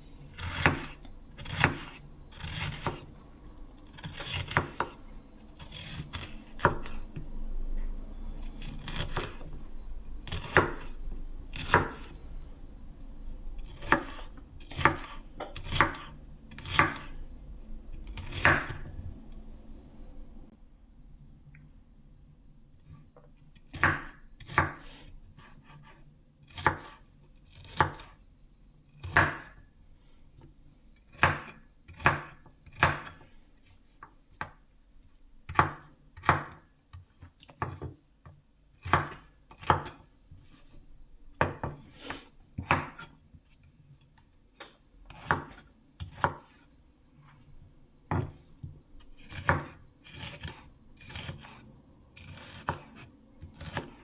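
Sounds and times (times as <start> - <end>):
knife chopping on cutting board: 0.3 - 3.1, 4.0 - 5.0, 5.6 - 7.0, 8.6 - 9.4, 11.5 - 12.1, 13.6 - 17.1, 23.7 - 24.8, 25.4 - 27.0, 29.0 - 29.5, 31.1 - 33.2, 35.5 - 36.6, 38.8 - 40.0, 41.4 - 43.1, 45.1 - 46.6, 48.1 - 48.4, 49.2 - 51.6, 52.2 - 54.0.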